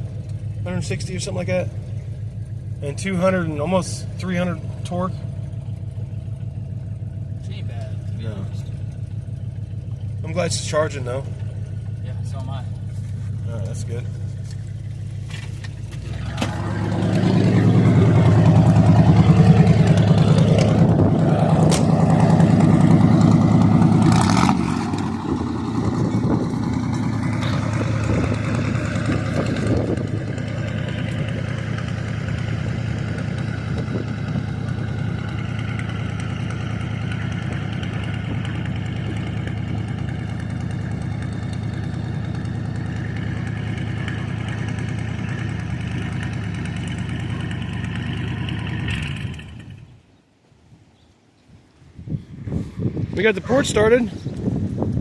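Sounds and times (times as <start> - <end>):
engine knocks: 0.0 - 49.8
car engine idling: 0.0 - 50.0, 52.3 - 55.0.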